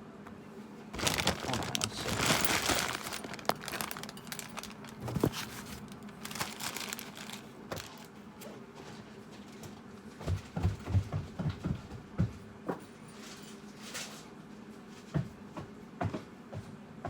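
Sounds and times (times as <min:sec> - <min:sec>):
rustling: 0:01.0 - 0:08.1.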